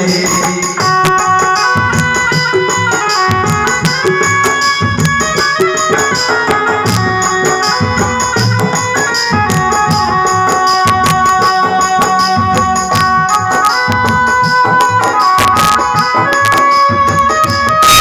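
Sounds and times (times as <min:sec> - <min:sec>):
hand drum beat: 0:00.0 - 0:18.0
jingly percussion: 0:00.0 - 0:18.0.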